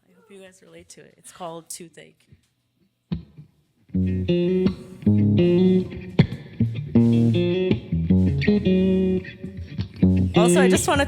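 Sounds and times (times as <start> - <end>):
bass guitar: 3.1 - 11.0
electric guitar choppy riff: 3.1 - 11.0.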